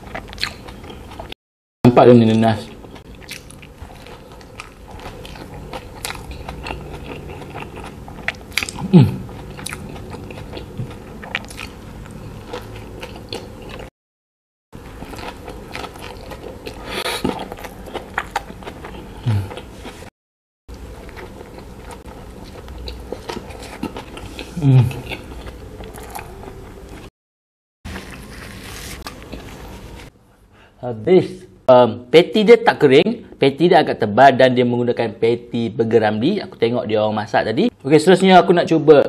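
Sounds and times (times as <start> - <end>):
wet chewing and mouth smacks: 3.0 - 13.9.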